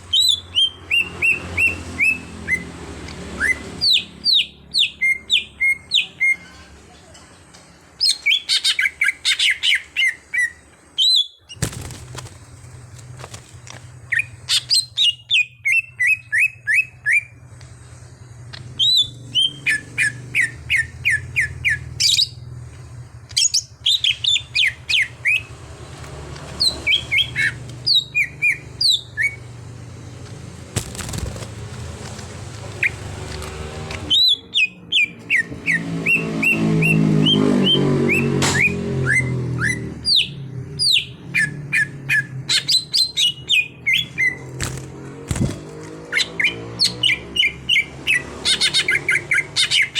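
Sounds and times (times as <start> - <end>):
bird singing whistled notes: 0.1 - 2.6, 3.4 - 6.4, 8.0 - 11.4, 14.1 - 17.3, 18.8 - 22.4, 26.6 - 29.5, 34.0 - 44.5.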